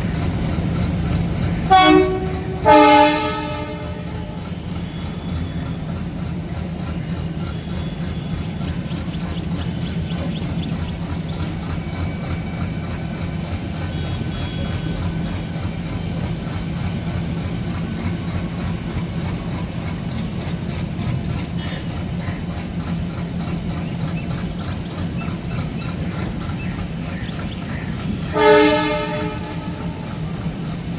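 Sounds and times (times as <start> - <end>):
train engine drone: 0.0 - 30.9
train rumbling: 0.0 - 30.9.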